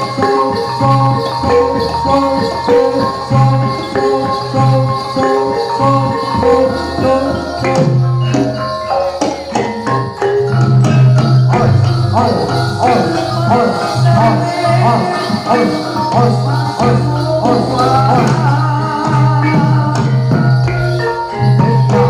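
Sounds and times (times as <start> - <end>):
tuned percussion and drums ensemble: 0.0 - 22.0.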